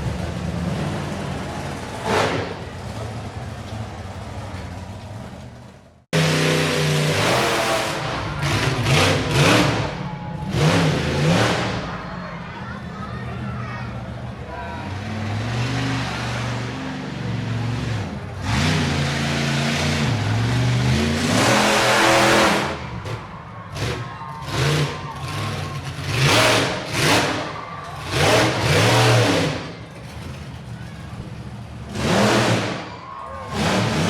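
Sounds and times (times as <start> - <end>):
monster truck engines revving: 0.0 - 34.0.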